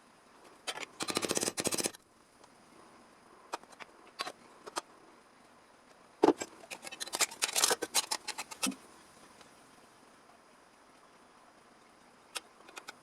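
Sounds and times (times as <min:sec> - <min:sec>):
metallic clicks and snips: 0:00.7 - 0:02.0, 0:06.4 - 0:08.8, 0:12.4 - 0:13.0.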